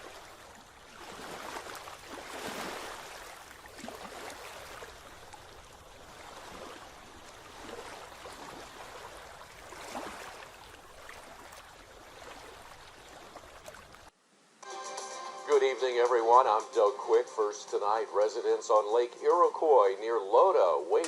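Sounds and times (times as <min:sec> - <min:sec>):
small water splashes: 0:00.0 - 0:14.2
moving water: 0:00.0 - 0:14.5, 0:15.6 - 0:21.0.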